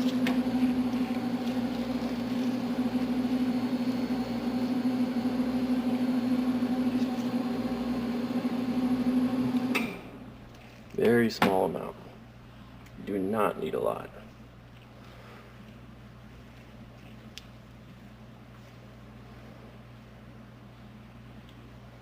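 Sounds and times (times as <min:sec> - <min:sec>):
loud machine hum: 0:00.0 - 0:10.3.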